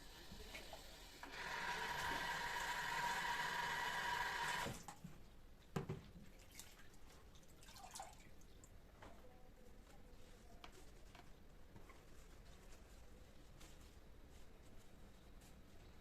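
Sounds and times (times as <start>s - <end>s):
knock: 5.8s - 6.0s.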